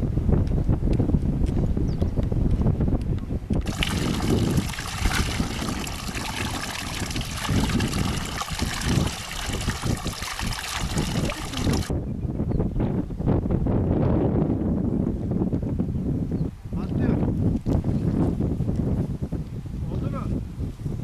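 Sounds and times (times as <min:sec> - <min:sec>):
wind rumbling on microphone: 0:00.0 - 0:21.0
running water: 0:03.6 - 0:11.9.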